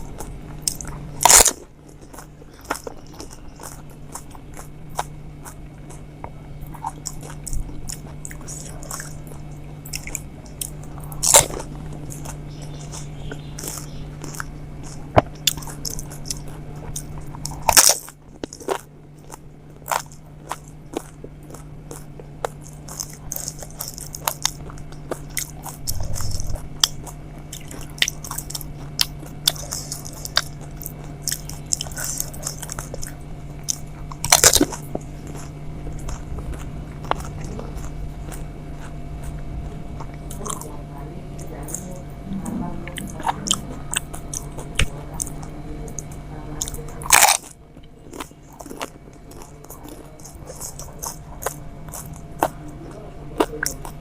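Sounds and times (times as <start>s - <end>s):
crisp food crunching: 0.0s - 42.2s, 43.0s - 54.0s
chewing: 0.0s - 54.0s
low hum: 0.0s - 54.0s.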